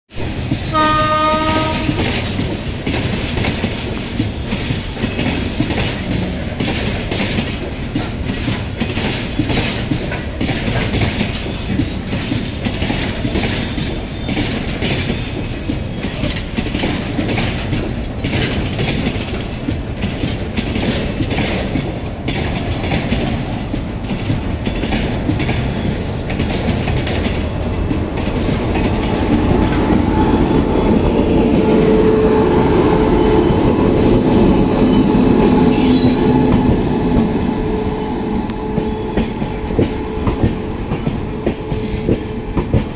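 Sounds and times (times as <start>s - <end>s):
electric locomotive rumble: 0.2s - 42.9s
wheels clacking over rail joints: 0.2s - 42.9s
train horn: 0.6s - 2.2s, 31.4s - 42.7s.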